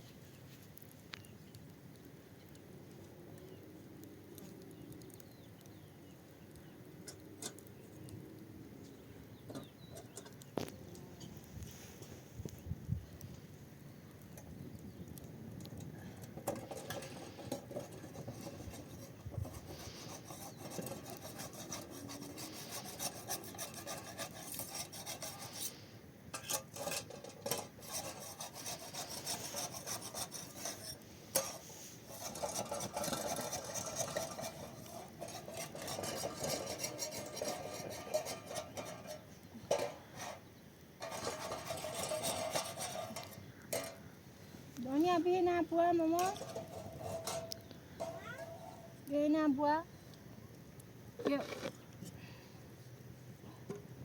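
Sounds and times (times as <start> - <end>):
rubbing and scraping: 16.3 - 44.1, 46.0 - 49.1.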